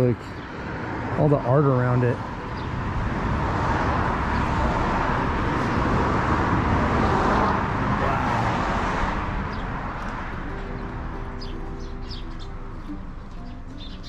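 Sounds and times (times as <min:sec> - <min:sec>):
rushing road traffic: 0:00.0 - 0:14.0
vehicle passing by: 0:00.0 - 0:14.0.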